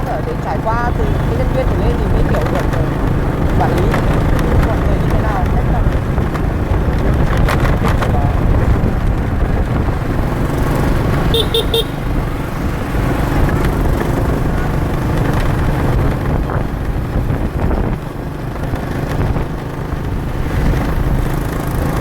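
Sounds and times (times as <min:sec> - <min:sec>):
low rumble of engines: 0:00.0 - 0:22.0
wind: 0:00.0 - 0:22.0
vehicle horn tooting: 0:11.3 - 0:12.1.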